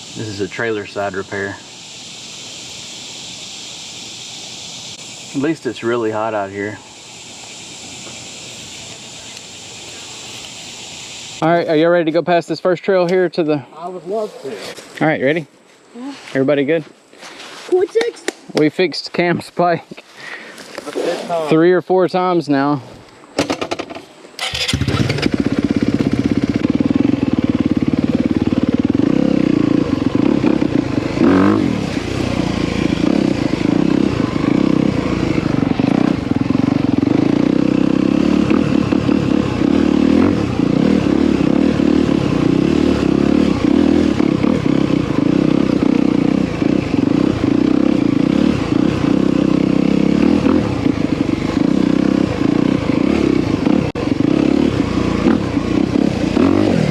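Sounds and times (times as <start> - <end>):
dirt bike engine running: 0.0 - 11.4, 24.4 - 56.9.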